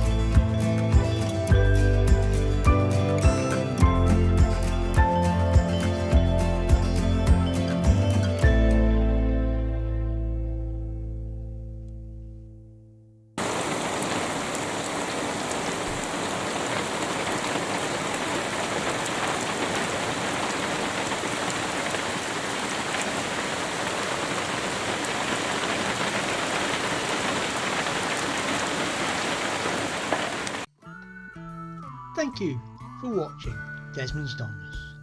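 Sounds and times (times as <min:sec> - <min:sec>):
steady rain patter: 0:13.4 - 0:30.7.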